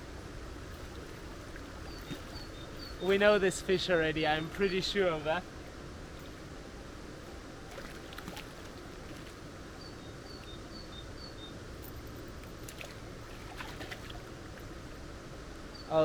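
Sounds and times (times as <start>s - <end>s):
small bird chirping: 1.9s - 3.1s, 15.7s - 16.0s.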